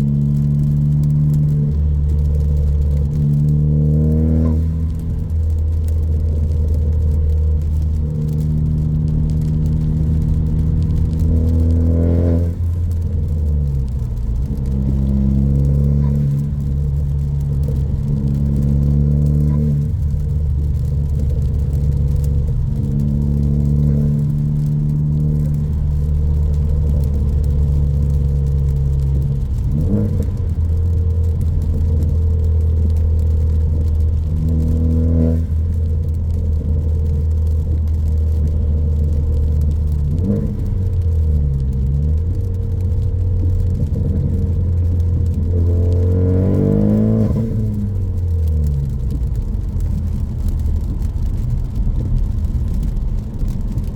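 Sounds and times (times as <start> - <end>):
car engine revving while driving: 0.0 - 53.9.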